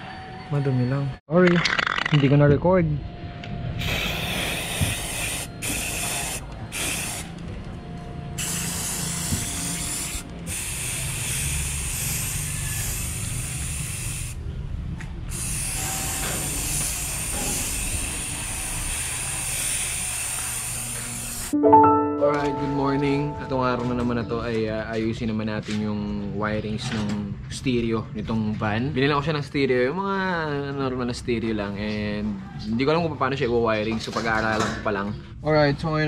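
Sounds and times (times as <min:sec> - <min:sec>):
aerosol spray can hissing: 0:03.8 - 0:07.3, 0:08.4 - 0:14.4, 0:18.9 - 0:21.3.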